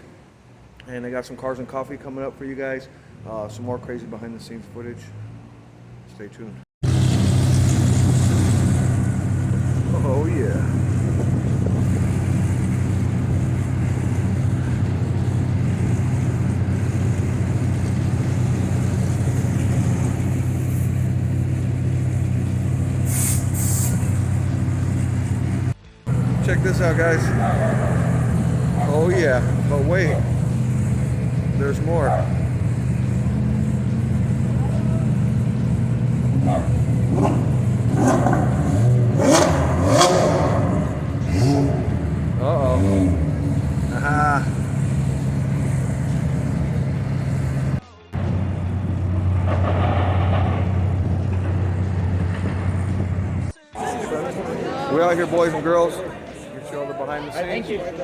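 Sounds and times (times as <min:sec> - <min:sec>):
engine idling: 0:06.8 - 0:55.5
short hisses: 0:23.0 - 0:24.2.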